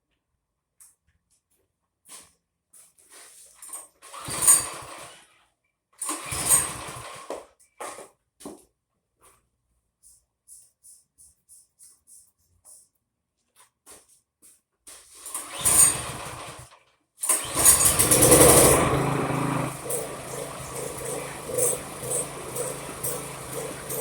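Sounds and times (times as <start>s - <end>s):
small engine cranking and running: 4.1s - 5.2s, 6.0s - 7.2s, 15.3s - 24.0s.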